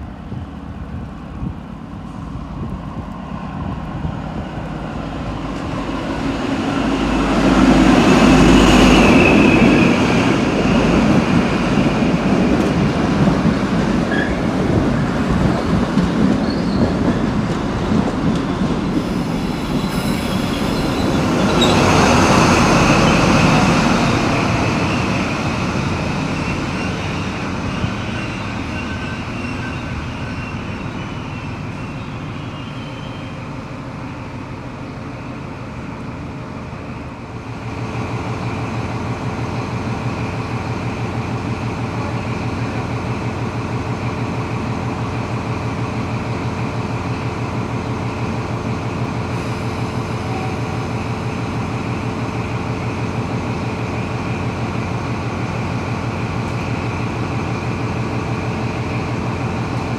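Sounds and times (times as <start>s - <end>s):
train carriages rumbling by: 0.0s - 59.9s
high squeal from running gear: 16.4s - 17.0s, 19.0s - 23.6s, 26.2s - 33.5s.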